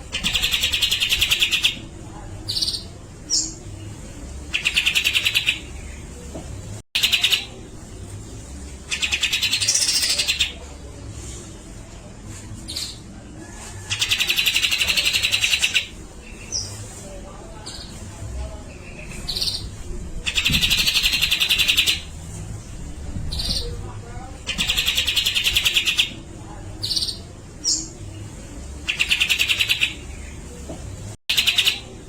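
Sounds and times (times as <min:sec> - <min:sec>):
bird rattling chatter calls: 0:24.4 - 0:26.1.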